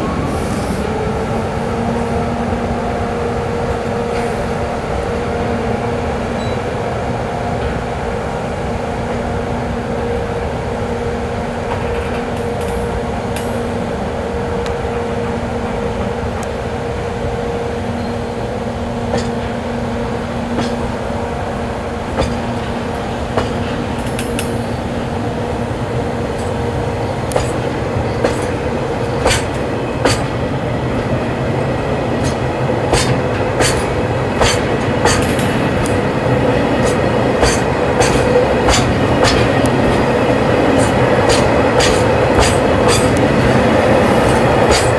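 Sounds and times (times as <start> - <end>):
train rumble and hum: 0.0 - 44.9
wheels clacking over rail joints: 11.5 - 14.0, 17.9 - 44.9.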